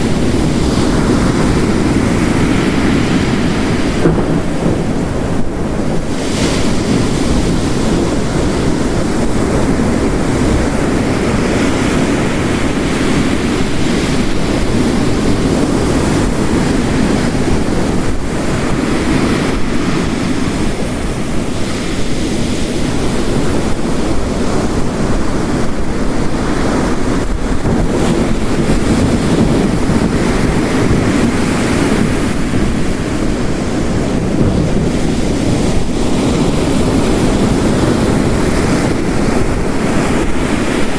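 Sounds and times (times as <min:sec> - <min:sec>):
heavy rain: 0:00.0 - 0:40.9
ocean waves crashing on rocks: 0:00.0 - 0:40.9.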